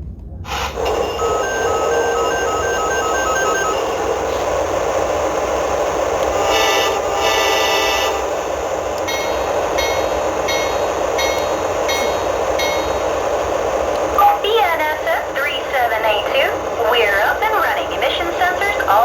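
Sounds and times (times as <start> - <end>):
diesel engine rumble: 0.0 - 19.0
locomotive horn blasts: 0.5 - 4.4, 6.4 - 8.3
bell ringing: 9.1 - 13.2.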